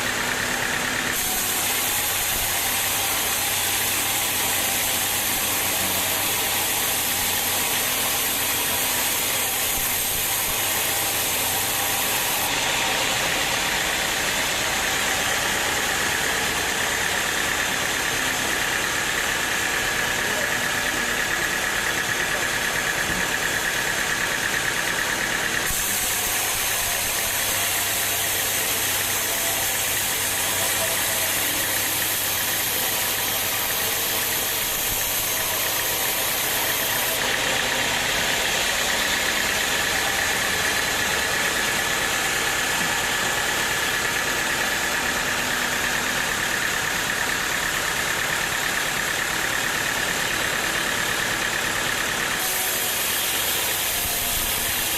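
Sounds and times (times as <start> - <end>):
sawmill machinery running: 0.0 - 54.9.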